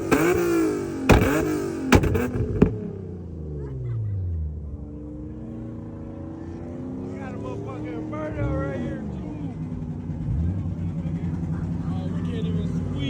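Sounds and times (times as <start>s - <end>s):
car engine revving: 0.0s - 13.0s
loud sharp cracks: 1.0s - 2.8s.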